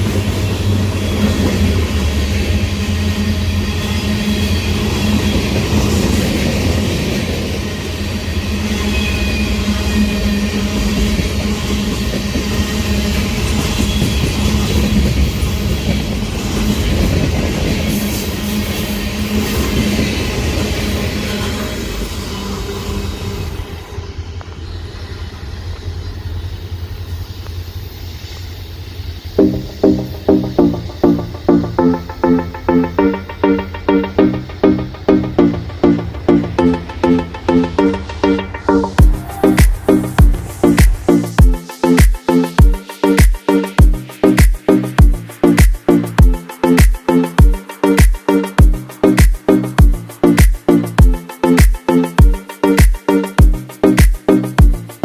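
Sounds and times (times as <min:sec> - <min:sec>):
train wheels rumbling on rail: 0:00.0 - 0:31.8, 0:38.8 - 0:41.6
faint high wheel squeals: 0:00.1 - 0:06.2, 0:07.6 - 0:17.1.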